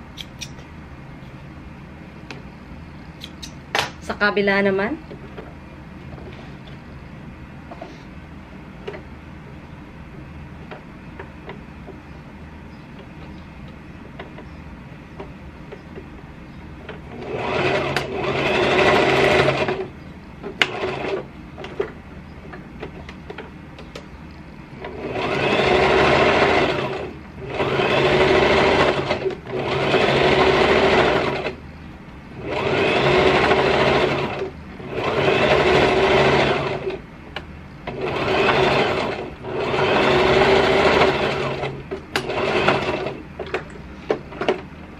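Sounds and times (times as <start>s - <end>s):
sewing machine stitching: 17.0s - 19.9s, 20.6s - 21.9s, 24.8s - 31.6s, 32.4s - 37.0s, 37.9s - 43.6s.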